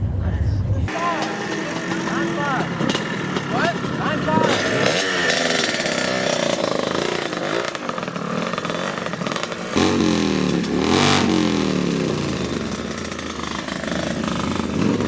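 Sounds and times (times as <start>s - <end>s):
motorcycle engines revving: 0.8s - 15.0s
loud engine blipped: 0.9s - 15.0s.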